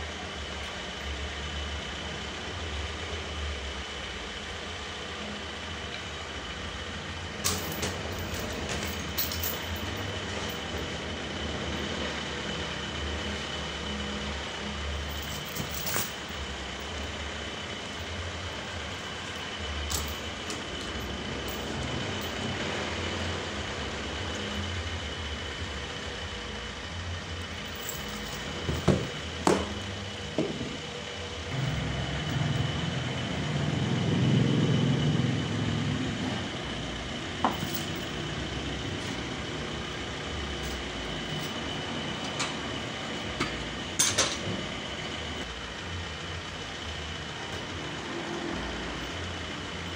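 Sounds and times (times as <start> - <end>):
sawmill machinery whining: 16.2 - 49.9.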